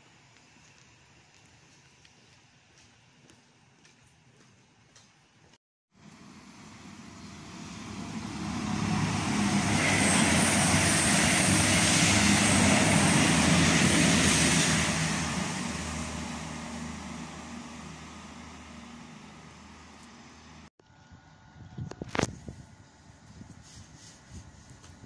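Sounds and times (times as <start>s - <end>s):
electric train passing: 6.0s - 20.7s
wheel-on-rail noise: 6.0s - 20.7s.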